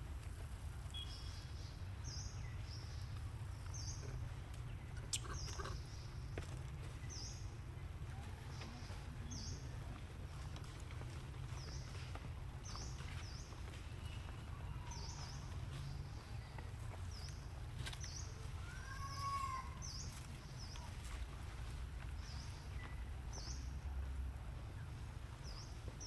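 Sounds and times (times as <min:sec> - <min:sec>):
bird chirping: 0:00.9 - 0:07.6.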